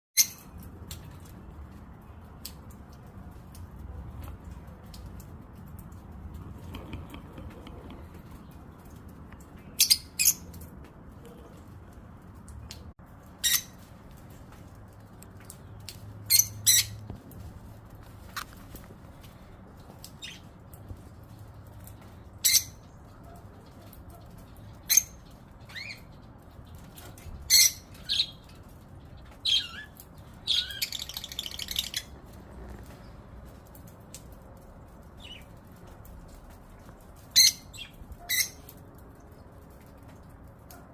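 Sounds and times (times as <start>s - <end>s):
birds scratchy chatter: 4.5s - 11.9s, 18.2s - 33.6s
birds sharp high calls: 29.3s - 32.2s.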